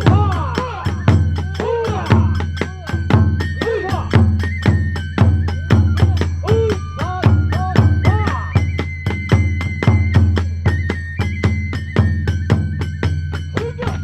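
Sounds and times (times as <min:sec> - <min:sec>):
bamboo flute: 0:00.0 - 0:14.0
hand cymbals: 0:00.0 - 0:14.0
taiko drums beating: 0:00.0 - 0:14.0.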